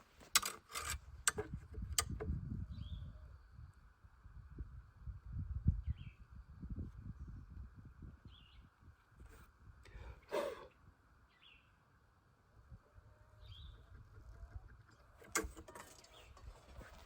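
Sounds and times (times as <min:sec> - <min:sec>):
bird chirps: 0:11.3 - 0:11.8, 0:13.2 - 0:15.2.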